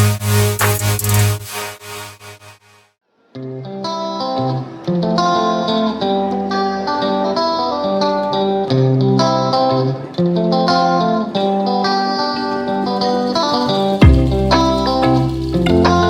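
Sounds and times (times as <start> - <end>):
plucked guitar music: 3.2 - 16.0.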